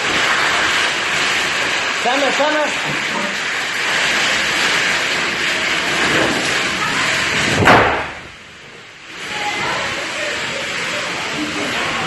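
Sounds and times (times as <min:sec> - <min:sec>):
heavy rain hiss: 0:00.0 - 0:12.0
sharp crack: 0:07.5 - 0:08.3.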